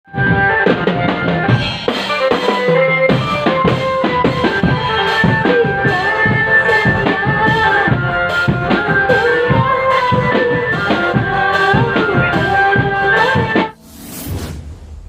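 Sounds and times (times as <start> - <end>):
drums beating quick rhythm: 0.1 - 13.8
melody line: 2.9 - 10.4.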